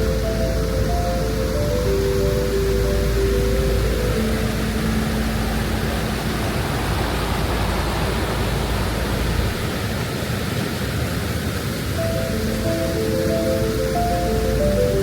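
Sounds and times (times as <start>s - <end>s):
soft music notes: 0.0s - 7.3s, 12.0s - 15.0s
waterfall rushing water: 0.0s - 15.0s.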